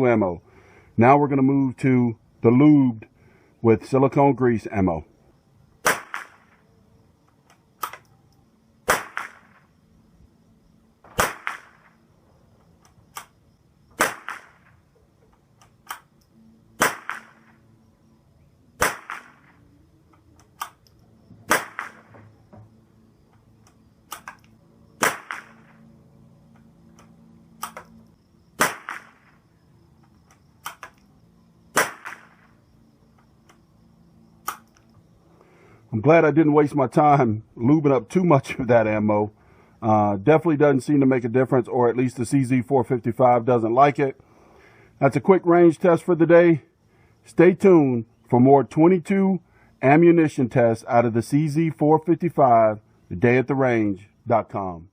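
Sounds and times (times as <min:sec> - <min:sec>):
rifle shots cracking: 0:05.8 - 0:06.6, 0:08.8 - 0:09.6, 0:11.1 - 0:11.9, 0:14.0 - 0:14.7, 0:16.8 - 0:17.5, 0:18.8 - 0:19.6, 0:21.4 - 0:22.1, 0:25.0 - 0:25.8, 0:28.6 - 0:29.4, 0:31.7 - 0:32.5
rifle bolt clicks: 0:07.4 - 0:08.1, 0:20.4 - 0:21.0, 0:27.0 - 0:27.9, 0:30.3 - 0:31.0.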